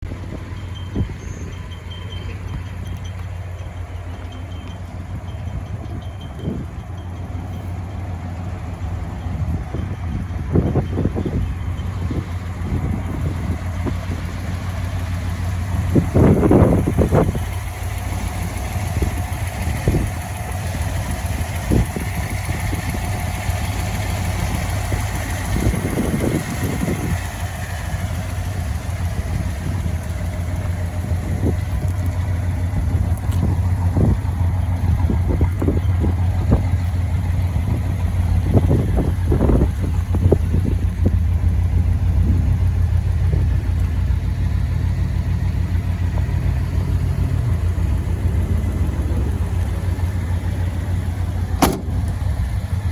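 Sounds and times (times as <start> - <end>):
car engine idling: 0.0 - 52.9
short thumps: 51.6 - 52.5.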